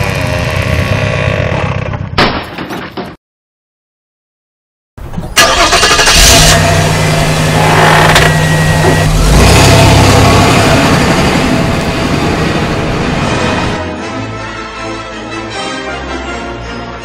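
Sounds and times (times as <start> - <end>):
car engine running loudly: 0.0 - 2.1, 5.5 - 13.8.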